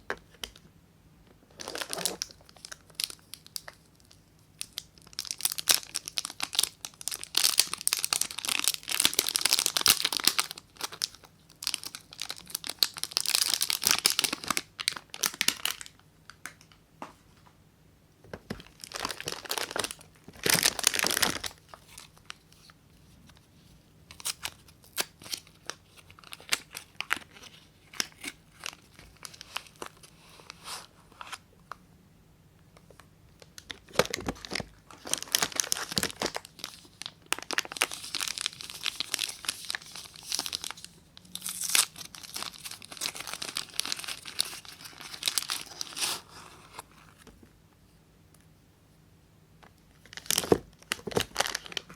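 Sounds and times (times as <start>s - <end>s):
wrapper tearing and crinkling: 1.6s - 3.8s, 4.6s - 15.9s, 18.6s - 22.7s, 24.1s - 30.1s, 33.5s - 46.8s, 50.1s - 51.9s.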